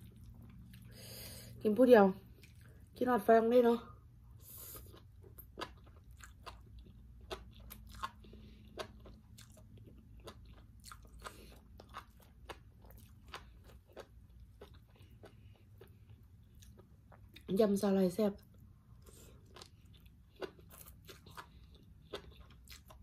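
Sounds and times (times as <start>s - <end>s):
wet crunchy chewing: 4.4s - 17.5s, 18.9s - 23.0s.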